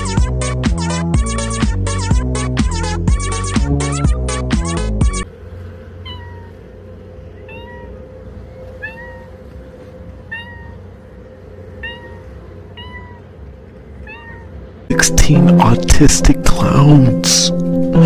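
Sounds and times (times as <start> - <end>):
electronic music: 0.0 - 5.3, 14.9 - 18.0
steady low hum: 0.0 - 18.0
cat meowing: 6.0 - 11.1, 11.7 - 14.9.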